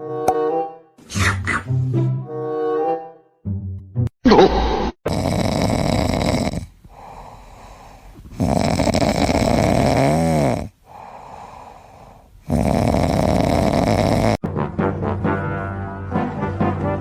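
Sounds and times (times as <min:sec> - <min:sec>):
pet snoring: 0:05.1 - 0:14.4
quiet breathing: 0:06.5 - 0:12.7.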